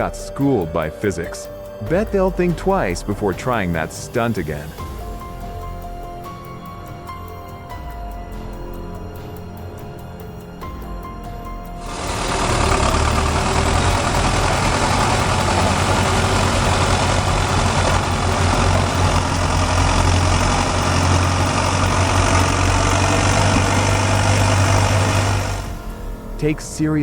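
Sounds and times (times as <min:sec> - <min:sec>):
tractor engine running: 0:11.7 - 0:27.0.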